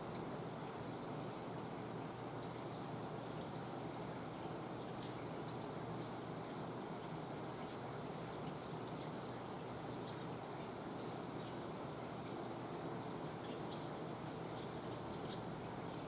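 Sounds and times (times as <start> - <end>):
steady outdoor hiss: 0.0 - 16.0
bird chirping: 2.6 - 16.0.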